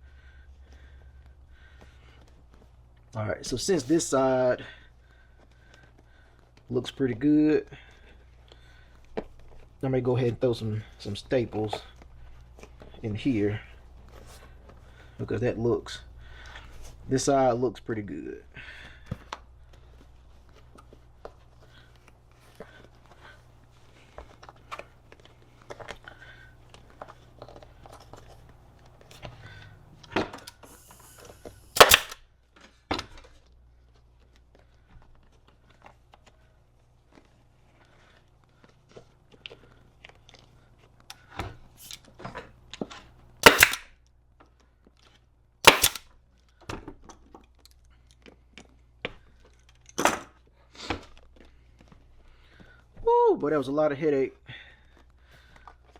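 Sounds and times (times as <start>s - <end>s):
staple gun firing: 31.7s - 32.2s, 43.4s - 43.8s, 45.7s - 46.0s.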